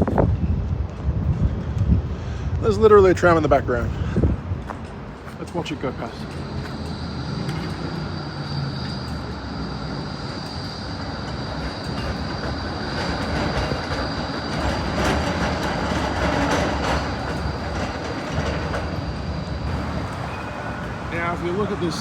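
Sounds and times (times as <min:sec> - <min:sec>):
electric tram passing on rails: 0:00.0 - 0:22.0
wheels clicking over track: 0:04.8 - 0:22.0.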